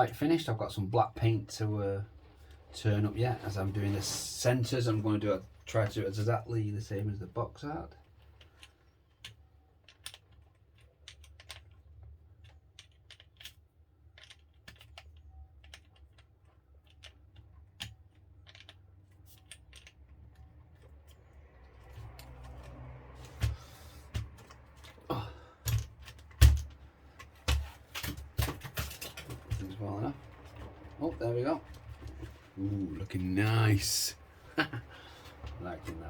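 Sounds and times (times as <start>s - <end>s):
plastic parts clicking and tapping: 8.0s - 32.5s.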